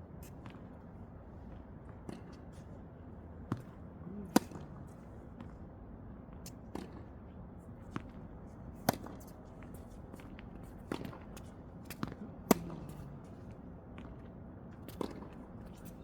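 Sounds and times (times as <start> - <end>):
tennis balls bouncing on court: 3.5 - 4.6, 8.8 - 13.0, 14.9 - 15.4
tennis balls struck by rackets: 3.5 - 4.6, 8.8 - 13.0.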